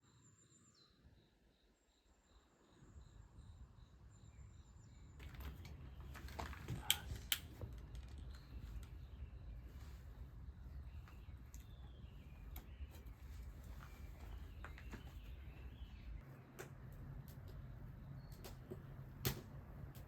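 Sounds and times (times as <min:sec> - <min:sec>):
wood fire crackling and popping: 0:06.1 - 0:09.0.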